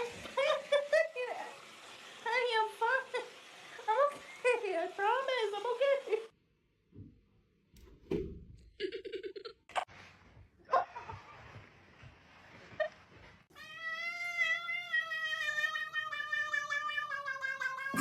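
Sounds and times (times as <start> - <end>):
cat yowling: 13.6 - 18.0.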